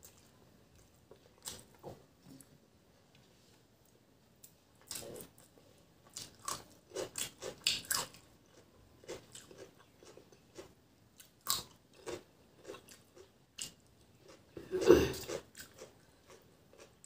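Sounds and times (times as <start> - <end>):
crunchy cucumber bites and chewing: 6.1 - 17.0.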